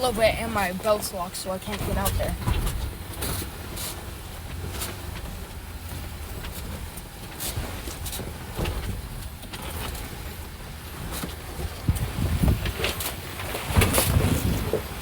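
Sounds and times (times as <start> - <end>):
vehicle engine rumble: 0.0 - 15.0
knocks and rattles: 4.5 - 15.0.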